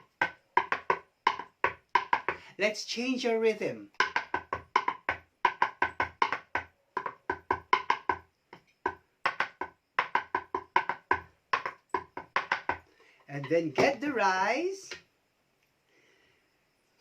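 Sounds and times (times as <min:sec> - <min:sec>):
rhythmic wooden knocking: 0:00.0 - 0:02.5, 0:03.9 - 0:14.1.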